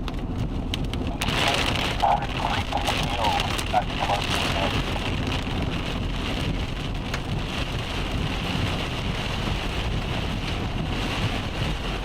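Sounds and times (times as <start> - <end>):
car rumbling on road: 0.0 - 12.0
heavy rain on vehicle: 0.0 - 12.0.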